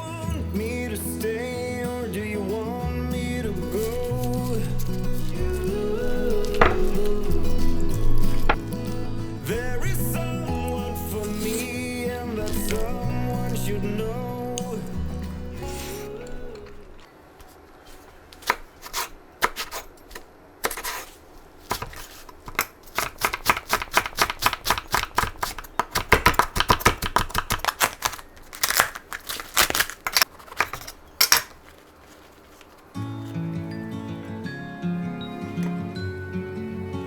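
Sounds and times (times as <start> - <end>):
background music: 0.0 - 17.0, 33.0 - 37.0.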